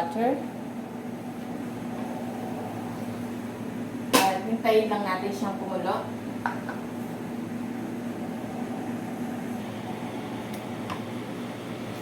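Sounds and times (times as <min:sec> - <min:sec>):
machine hum with hiss: 0:06.0 - 0:12.0.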